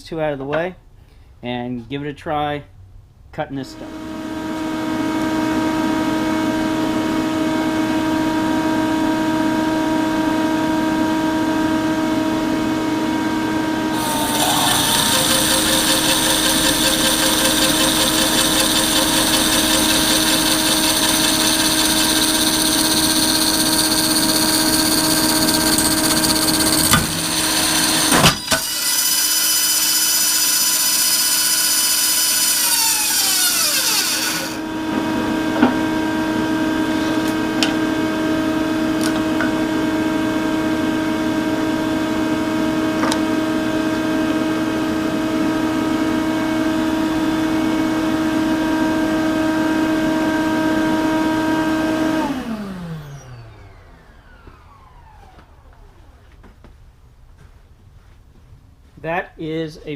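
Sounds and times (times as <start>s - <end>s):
dust collector running: 13.6s - 56.5s
bandsaw running: 13.9s - 35.2s, 49.8s - 55.9s.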